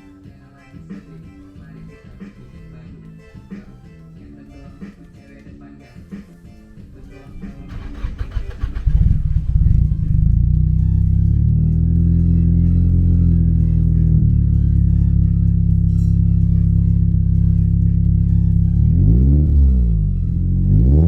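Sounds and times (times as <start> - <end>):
car engine starting and idling: 6.6 - 21.0.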